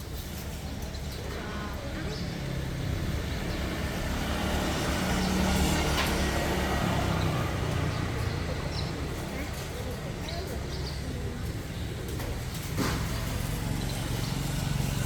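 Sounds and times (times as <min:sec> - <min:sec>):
vehicle passing by: 0:02.2 - 0:09.6.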